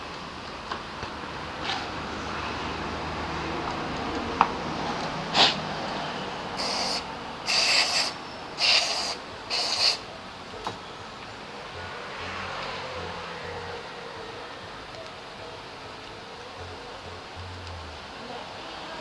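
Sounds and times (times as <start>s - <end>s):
aerosol spray hissing bursts: 6.6s - 10.0s.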